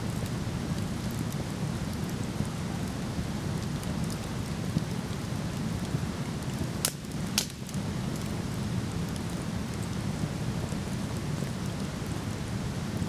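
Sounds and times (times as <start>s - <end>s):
wood fire crackling: 0.0s - 13.0s
sharp fire pops: 6.6s - 7.9s.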